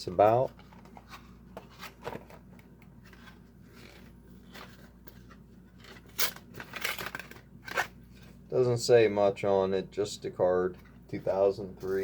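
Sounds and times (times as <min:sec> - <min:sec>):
packaging clicks and rustles: 0:00.1 - 0:08.1
packaging crinkle: 0:03.1 - 0:08.0.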